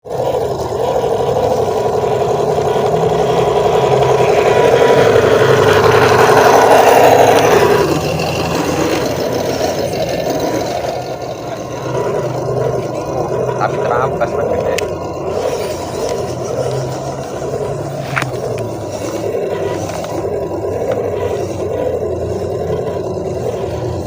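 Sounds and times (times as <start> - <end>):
toy truck motor whining: 0.0 - 24.0.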